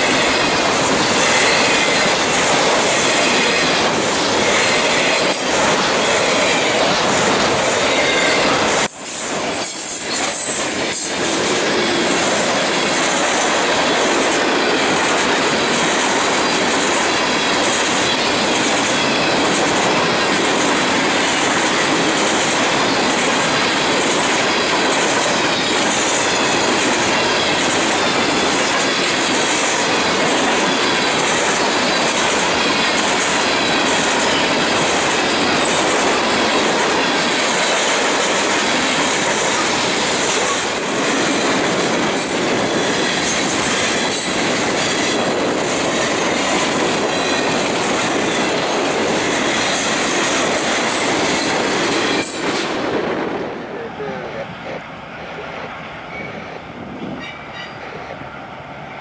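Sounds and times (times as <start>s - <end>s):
freight train rolling past: 0.0s - 59.0s.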